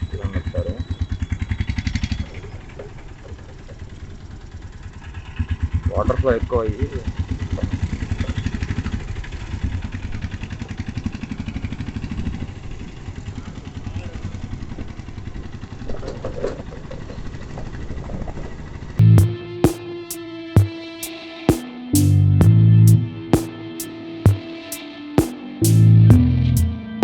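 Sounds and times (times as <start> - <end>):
guitar music: 19.0 - 27.0.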